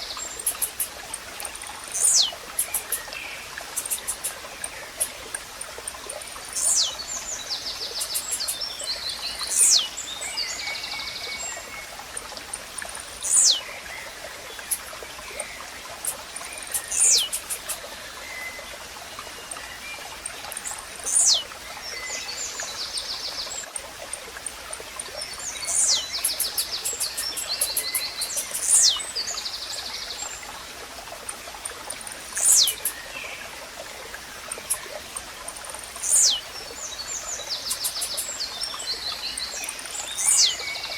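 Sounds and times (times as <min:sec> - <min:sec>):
flowing water hiss: 0:00.0 - 0:40.9
buzzy bird chirps: 0:01.9 - 0:03.0, 0:03.8 - 0:04.4, 0:06.6 - 0:07.0, 0:08.0 - 0:08.6, 0:09.5 - 0:09.9, 0:13.2 - 0:13.6, 0:16.0 - 0:17.8, 0:21.1 - 0:21.4, 0:25.6 - 0:29.0, 0:32.4 - 0:33.0, 0:36.0 - 0:36.4, 0:37.6 - 0:38.3.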